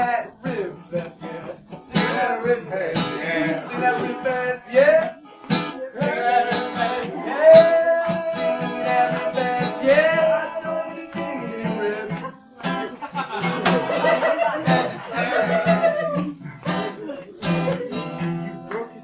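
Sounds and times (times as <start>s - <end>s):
strummed acoustic guitar: 0.0s - 19.0s
person singing long notes: 5.7s - 12.2s.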